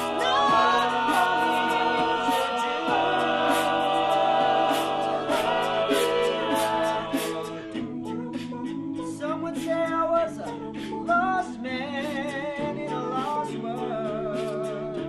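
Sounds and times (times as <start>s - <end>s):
steady percussive beat: 0.0s - 9.8s
male group singing in harmony: 0.0s - 15.0s.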